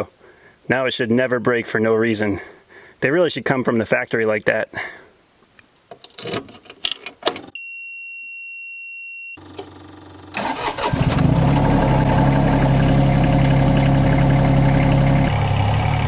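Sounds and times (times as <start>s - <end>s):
diesel engine starting and idling: 9.4s - 16.0s.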